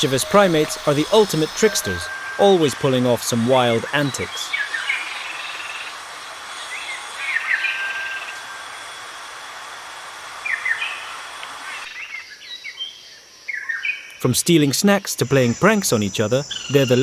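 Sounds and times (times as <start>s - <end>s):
short chirping animal calls: 0.0s - 9.3s
high insect-like hiss: 0.0s - 17.0s.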